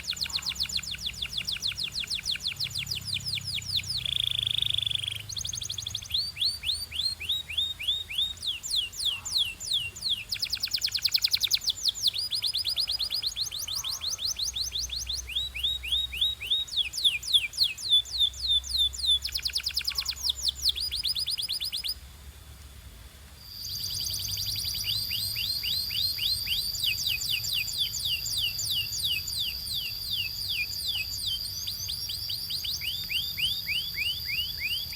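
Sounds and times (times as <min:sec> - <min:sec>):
canary singing trills: 0:00.0 - 0:22.0, 0:23.4 - 0:34.9.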